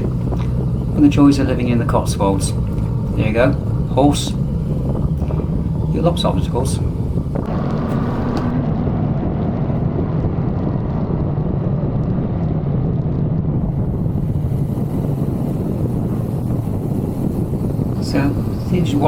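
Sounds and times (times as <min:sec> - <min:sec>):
motorcycle engine running: 0:00.0 - 0:08.6, 0:13.4 - 0:19.0.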